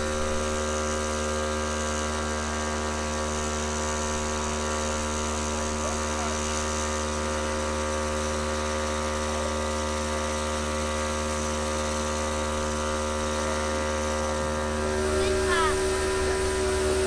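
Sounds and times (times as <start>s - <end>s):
steady machine hum: 11.3s - 17.0s.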